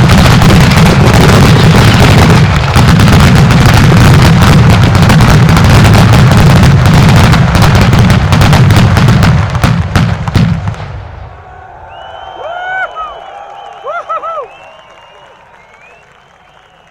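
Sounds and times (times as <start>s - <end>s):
dense firecracker bangs: 0.0s - 11.4s.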